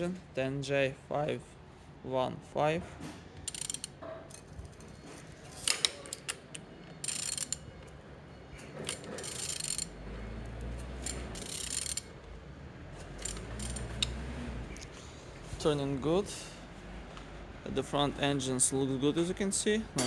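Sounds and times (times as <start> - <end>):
ratchet wrench clicking: 3.4 - 4.9, 5.6 - 8.0, 8.6 - 12.2, 13.0 - 14.2
engine internals rumbling: 6.3 - 18.8.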